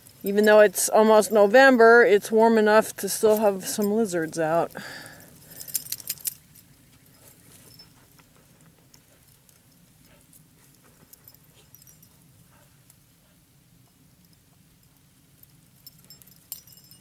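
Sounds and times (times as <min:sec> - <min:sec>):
jingling clicks: 0:02.8 - 0:12.6, 0:14.2 - 0:17.0
dogs scratching in dry dirt: 0:05.4 - 0:16.5.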